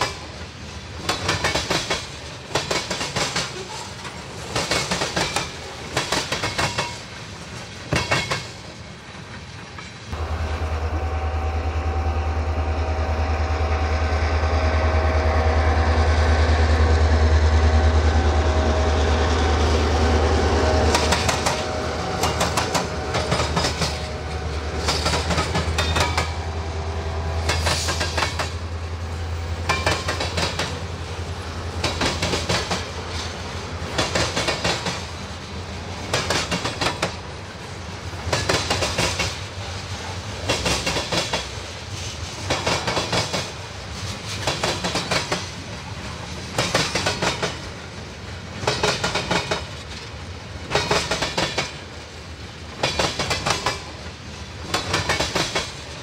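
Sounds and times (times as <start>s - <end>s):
train wheels clicking over crossing: 0.0s - 10.5s, 20.1s - 26.6s, 27.3s - 31.0s, 31.7s - 37.3s, 38.2s - 52.0s, 52.7s - 56.0s
diesel locomotive engine drone: 0.0s - 56.0s.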